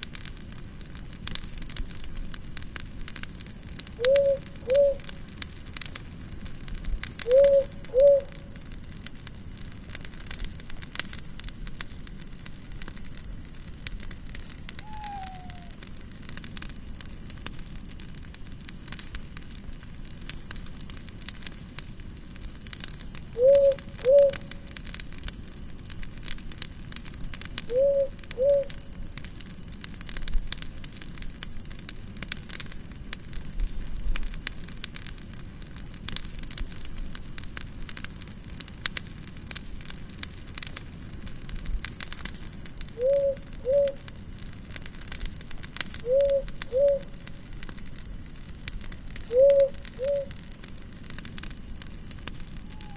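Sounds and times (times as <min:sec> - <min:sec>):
insect chirps: 0:00.0 - 0:01.6, 0:04.0 - 0:05.0, 0:14.8 - 0:15.8, 0:20.2 - 0:21.6, 0:23.4 - 0:24.5, 0:27.7 - 0:28.7, 0:33.6 - 0:34.2, 0:36.5 - 0:39.0, 0:43.0 - 0:44.1, 0:46.0 - 0:47.2, 0:49.3 - 0:50.4, 0:52.7 - 0:52.9
campfire crackling and popping: 0:00.0 - 0:52.9.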